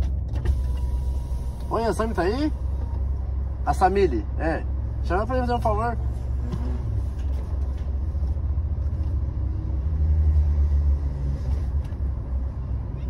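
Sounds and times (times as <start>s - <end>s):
car engine idling: 0.0s - 9.4s.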